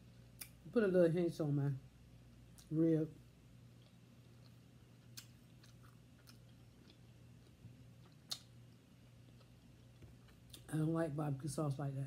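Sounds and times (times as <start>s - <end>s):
mouth clicks and smacks: 0.4s - 0.6s, 3.8s - 7.0s, 8.0s - 8.6s
faint chewing: 3.6s - 10.7s.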